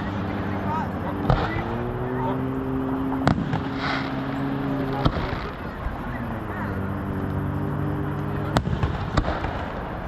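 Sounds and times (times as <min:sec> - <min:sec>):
firework bang: 0:03.2 - 0:04.1, 0:04.9 - 0:05.6, 0:08.4 - 0:10.0.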